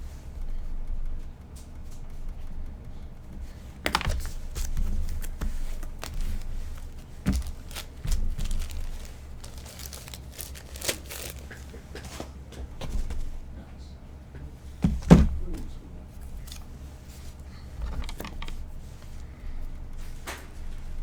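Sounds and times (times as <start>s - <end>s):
low steady hum: 0.0s - 21.0s
wrappers and cards crinkling: 3.8s - 13.4s.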